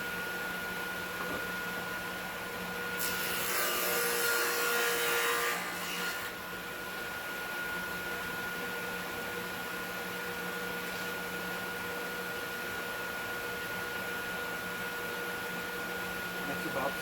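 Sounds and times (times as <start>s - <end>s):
table saw blade cutting wood: 3.0s - 6.3s.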